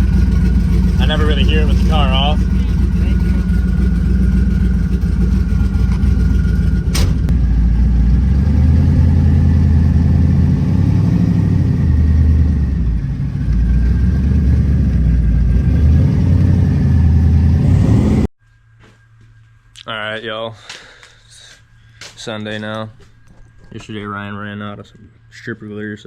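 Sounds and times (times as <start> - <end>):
car engine running loud: 0.0 - 18.3.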